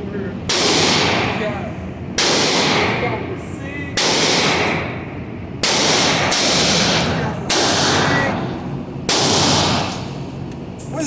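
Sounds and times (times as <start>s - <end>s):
gunshots echoing: 0.5s - 1.5s, 2.2s - 3.2s, 4.0s - 10.2s.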